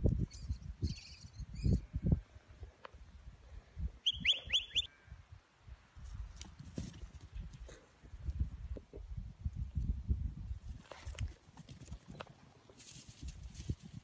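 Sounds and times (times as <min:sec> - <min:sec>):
small bird chirping: 0:00.2 - 0:01.8, 0:04.0 - 0:04.9.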